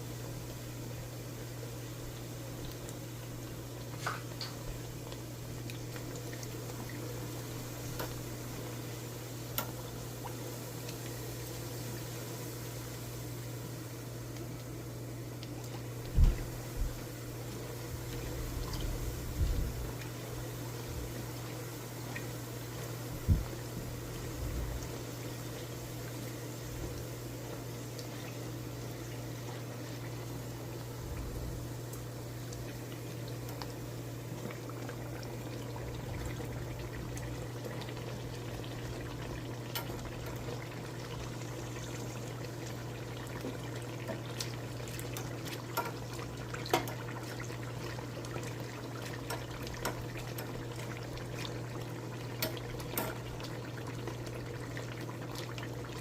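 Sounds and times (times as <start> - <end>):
dough sizzling in hot oil: 0.0 - 56.0
low steady hum: 0.0 - 56.0
oil popping and crackling: 2.5 - 8.8, 25.6 - 56.0.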